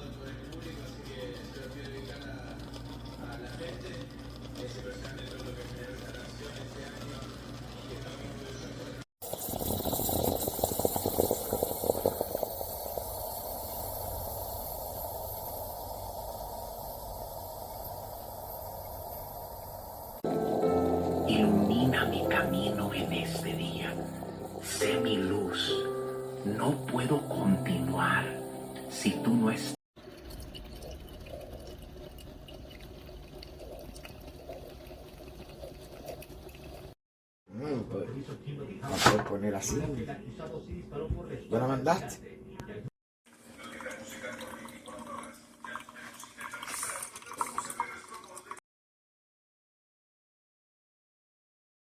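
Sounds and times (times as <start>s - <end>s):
espresso machine steam hissing: 9.2s - 29.4s
liquid trickling and dripping: 30.0s - 37.0s, 43.5s - 48.6s.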